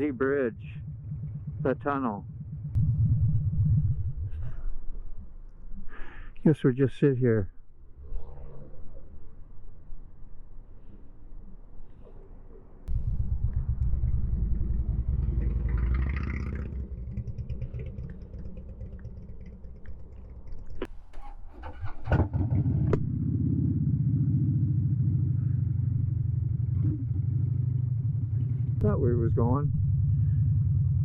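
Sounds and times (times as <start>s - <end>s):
motorcycle engine idling: 0.0s - 4.4s, 12.9s - 31.0s.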